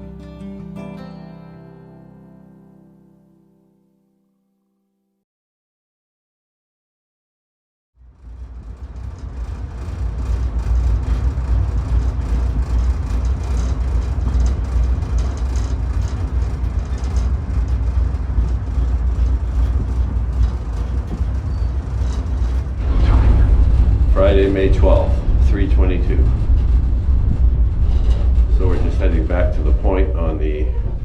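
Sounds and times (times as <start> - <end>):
shuttle tram rumbling: 8.0 - 31.0.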